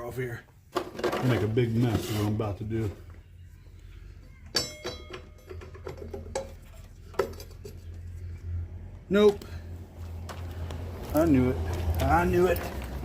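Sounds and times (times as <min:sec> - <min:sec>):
metal tools clanking: 0:04.5 - 0:08.1.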